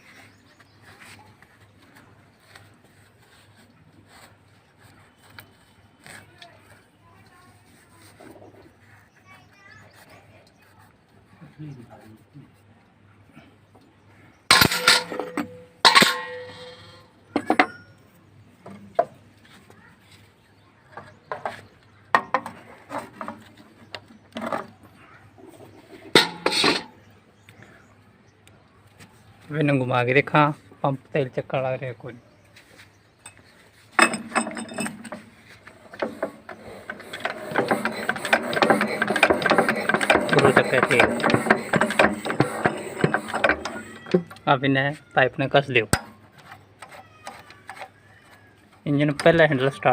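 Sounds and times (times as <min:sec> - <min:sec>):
metal tools clanking on metal: 0:14.5 - 0:18.0, 0:26.0 - 0:27.0, 0:33.2 - 0:44.4
diesel engine clicking and ticking: 0:37.0 - 0:43.8.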